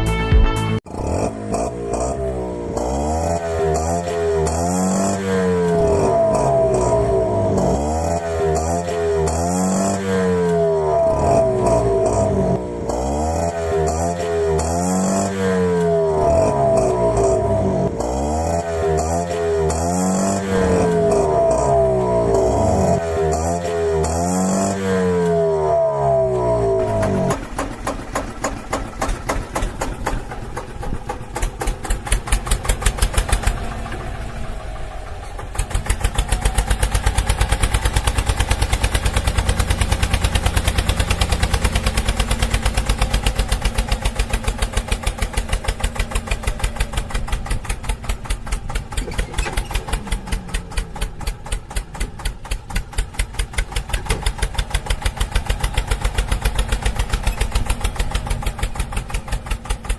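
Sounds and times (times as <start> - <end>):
tractor engine idling: 15.6 - 24.4, 25.1 - 59.9.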